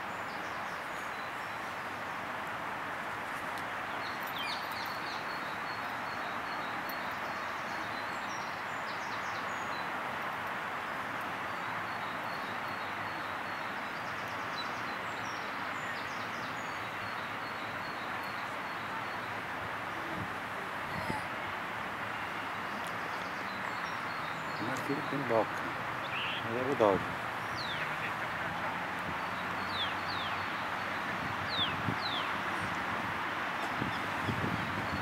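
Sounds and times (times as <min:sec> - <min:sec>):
outdoor background hiss: 0:00.0 - 0:35.0
small birds chirping: 0:03.8 - 0:10.0, 0:20.8 - 0:32.8.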